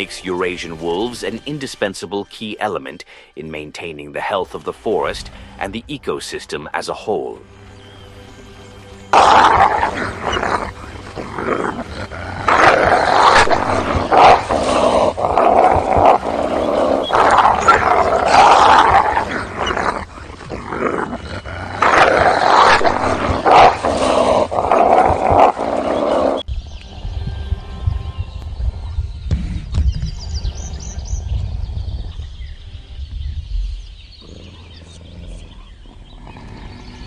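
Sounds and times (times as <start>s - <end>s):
wolves growling and snarling: 9.0s - 26.5s, 34.0s - 37.0s.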